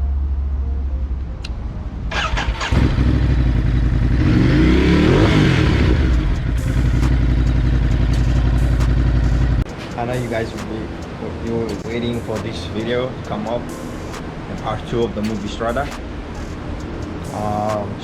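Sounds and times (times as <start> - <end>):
motorcycle engine idling and revving: 2.1 - 9.7.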